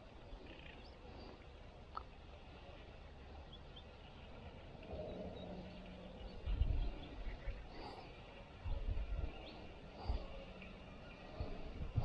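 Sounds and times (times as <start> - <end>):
faint outdoor background noise: 0.0 - 12.0
faint bird chirps: 0.2 - 2.2.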